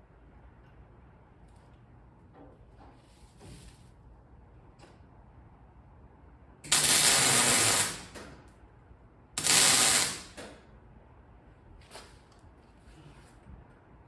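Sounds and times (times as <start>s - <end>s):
welding crackling hiss: 6.7s - 8.2s, 9.4s - 10.4s.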